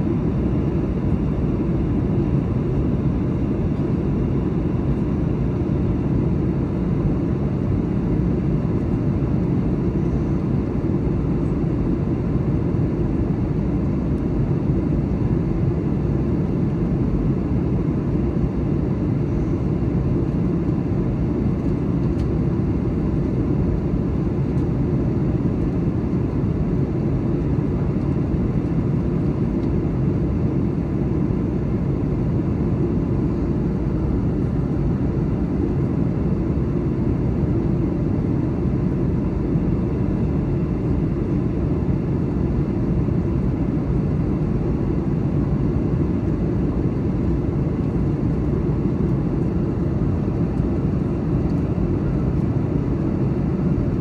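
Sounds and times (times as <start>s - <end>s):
jet engines droning: 0.0s - 54.0s.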